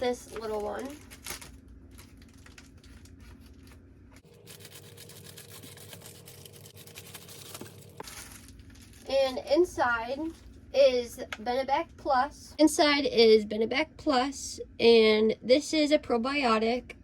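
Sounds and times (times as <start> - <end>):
package being torn open: 0.2 - 3.8, 4.4 - 9.1.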